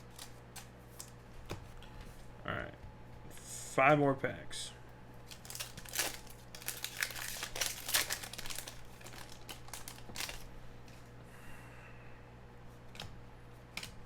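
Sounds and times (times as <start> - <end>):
wrappers tearing and crinkling: 0.0 - 1.2, 5.2 - 10.5.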